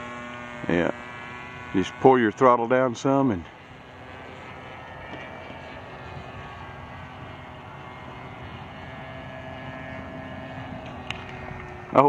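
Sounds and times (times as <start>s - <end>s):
model airplane engine buzzing: 0.0s - 12.0s.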